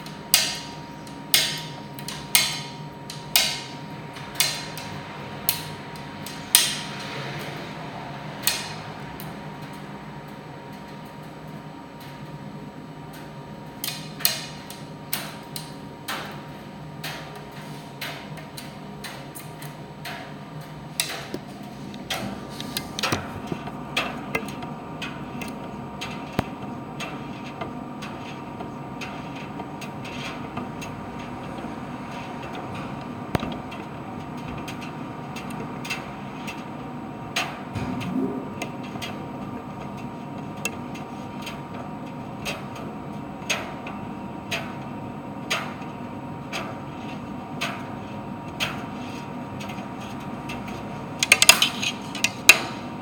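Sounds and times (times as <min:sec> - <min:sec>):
tumble dryer humming: 0:21.3 - 0:35.8.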